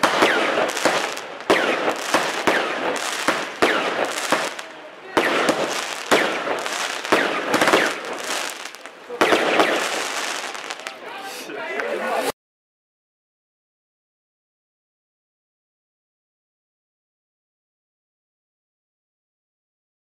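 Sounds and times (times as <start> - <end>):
crackling spray of sparks: 0.0 - 11.5
firework bursts: 0.0 - 12.3.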